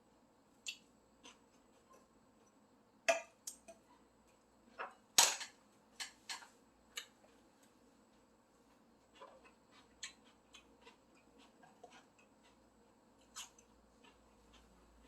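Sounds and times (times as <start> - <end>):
faint eating clicks and taps: 0.6 - 15.0.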